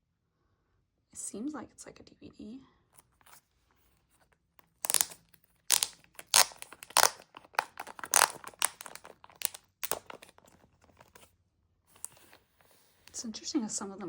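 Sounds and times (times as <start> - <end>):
plastic wrapping crinkling: 4.6 - 11.3.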